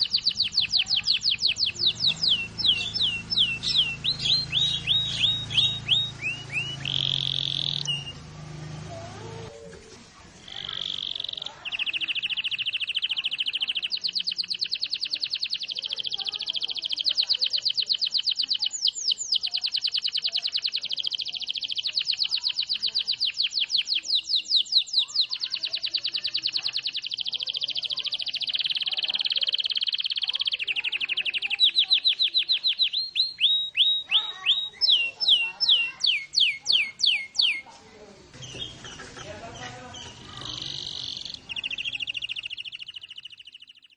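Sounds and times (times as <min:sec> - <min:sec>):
canary singing rapid trills: 0:00.0 - 0:09.6, 0:10.4 - 0:37.7, 0:38.3 - 0:43.9.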